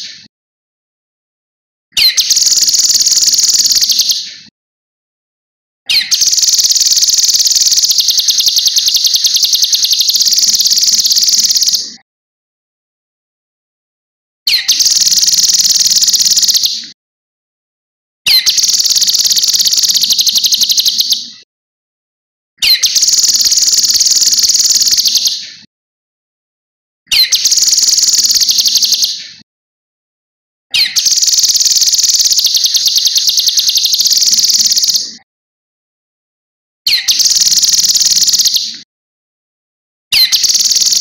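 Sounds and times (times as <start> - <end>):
bird singing a chattering trill: 2.0 - 4.3, 5.9 - 12.0, 14.5 - 16.8, 18.3 - 21.3, 22.6 - 25.5, 27.1 - 29.4, 30.7 - 35.1, 36.9 - 38.8, 40.2 - 41.0.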